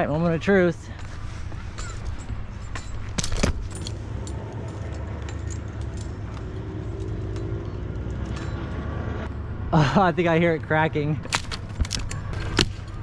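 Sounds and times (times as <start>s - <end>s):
metal hardware clinking: 0.9s - 9.1s, 11.2s - 13.0s.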